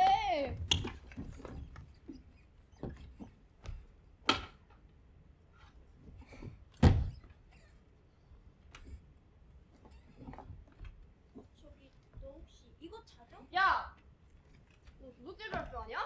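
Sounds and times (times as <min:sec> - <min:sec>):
knocks and thumps: 0:06.1 - 0:07.3.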